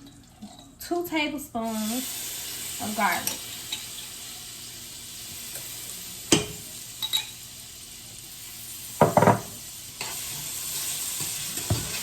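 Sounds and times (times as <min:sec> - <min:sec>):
garlic sizzling in butter: 0:01.6 - 0:12.0
utensil knocking against pan: 0:09.0 - 0:09.5.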